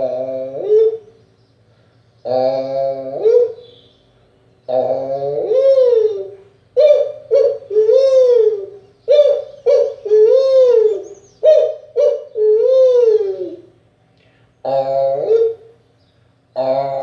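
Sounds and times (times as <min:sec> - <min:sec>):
man imitating bird call: 0:02.2 - 0:03.9, 0:04.7 - 0:13.7, 0:14.6 - 0:15.7, 0:16.6 - 0:17.0.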